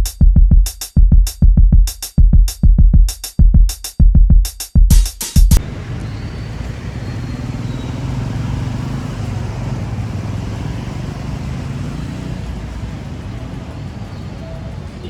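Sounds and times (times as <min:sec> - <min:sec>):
drum machine beat: 0:00.0 - 0:05.6
road traffic hum: 0:05.6 - 0:15.0.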